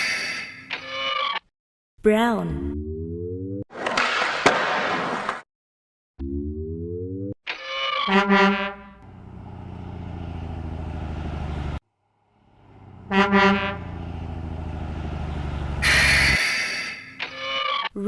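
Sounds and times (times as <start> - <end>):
truck horn honking: 8.1 - 9.6, 12.5 - 16.4
engine low rumble: 8.9 - 16.4.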